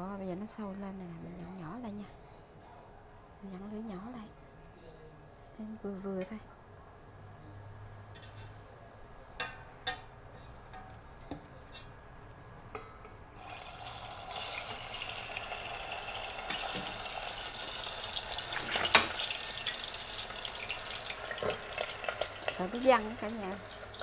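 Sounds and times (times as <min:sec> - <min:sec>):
chicken frying in hot oil: 0:13.4 - 0:24.0.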